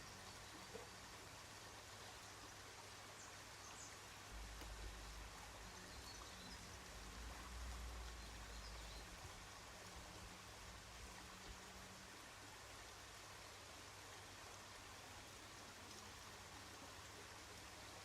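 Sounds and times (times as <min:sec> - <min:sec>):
stream rushing: 0:00.0 - 0:18.0.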